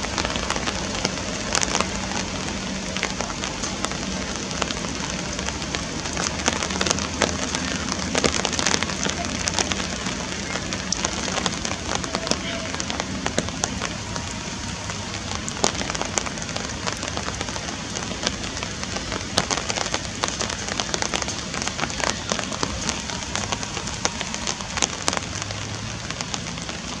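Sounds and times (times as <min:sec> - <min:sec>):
rain falling on water: 0:00.0 - 0:27.0.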